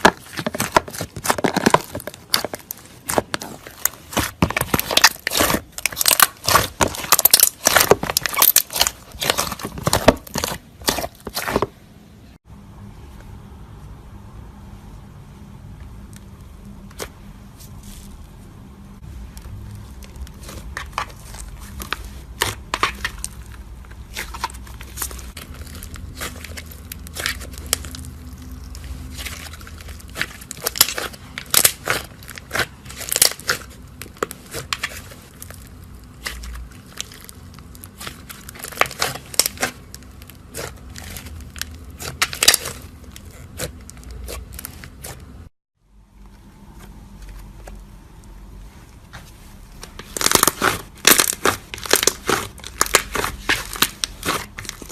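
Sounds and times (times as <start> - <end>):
slime crackling and popping: 0.0 - 11.7, 19.4 - 45.4, 49.9 - 54.9
low steady hum: 0.0 - 54.9.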